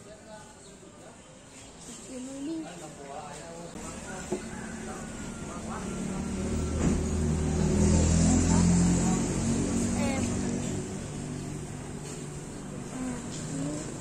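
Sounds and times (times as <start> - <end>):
car engine passing by: 3.9 - 14.0.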